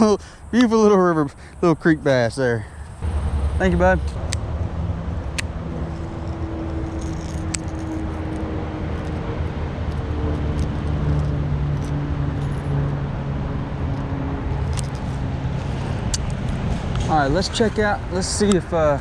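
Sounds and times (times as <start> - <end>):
low motor drone: 2.6 - 19.0.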